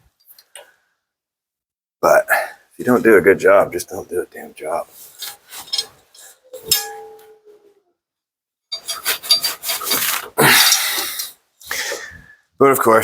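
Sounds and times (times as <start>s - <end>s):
rubbing and rustling handling noises: 4.6s - 6.8s, 8.7s - 12.1s
metallic clank: 5.6s - 7.5s.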